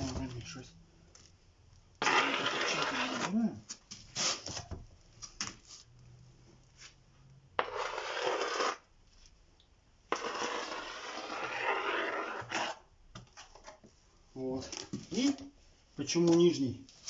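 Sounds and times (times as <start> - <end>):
spatula scraping wet plaster: 2.0 - 3.5, 7.6 - 8.9, 10.1 - 12.9.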